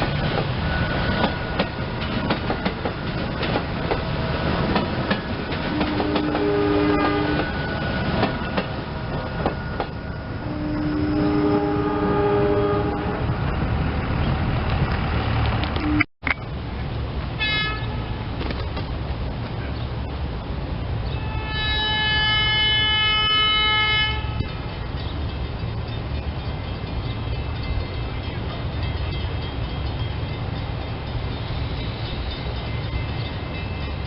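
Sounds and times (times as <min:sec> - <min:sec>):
wheels clicking over rail joints: 0:00.0 - 0:10.0
electric train running past: 0:00.0 - 0:34.0
train horn blasts: 0:05.7 - 0:07.9, 0:10.2 - 0:13.4, 0:17.4 - 0:18.2, 0:21.1 - 0:24.6.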